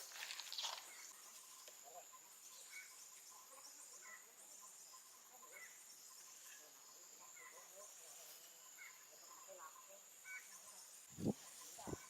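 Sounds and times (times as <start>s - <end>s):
insect chirring: 0.0s - 12.0s.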